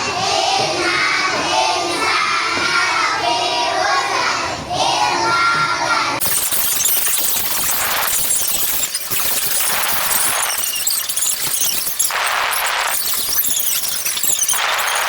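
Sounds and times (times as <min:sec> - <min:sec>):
children singing: 0:00.0 - 0:06.2
loud hiss of noise: 0:06.2 - 0:15.0.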